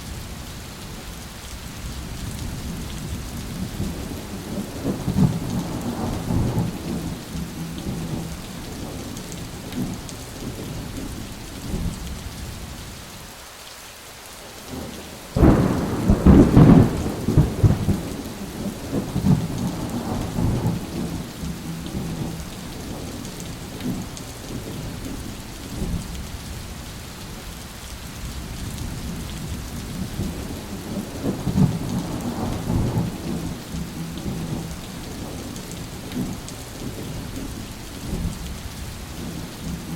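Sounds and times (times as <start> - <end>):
steady rain: 0.0 - 39.9
rolling thunder: 2.4 - 12.0, 15.0 - 26.0, 28.4 - 39.9
loud thunderclap: 3.8 - 7.2, 15.4 - 21.3, 30.1 - 35.3.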